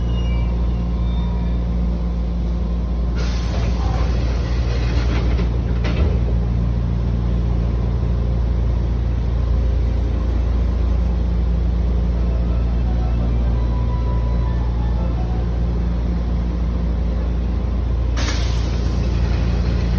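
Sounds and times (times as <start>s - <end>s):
train low hum: 0.0s - 19.9s
pneumatic door air hiss: 3.2s - 5.4s, 18.2s - 19.9s.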